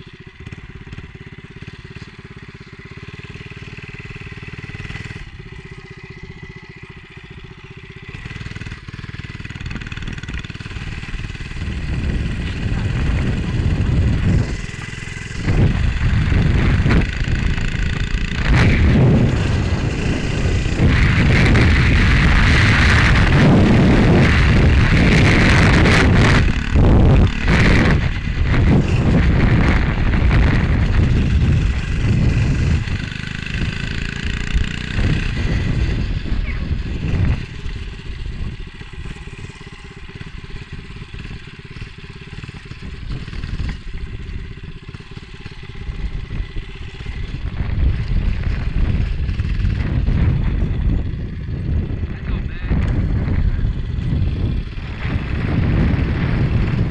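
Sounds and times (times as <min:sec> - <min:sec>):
minibike engine running: 0:00.0 - 0:56.9
wind buffeting microphone: 0:08.1 - 0:56.9.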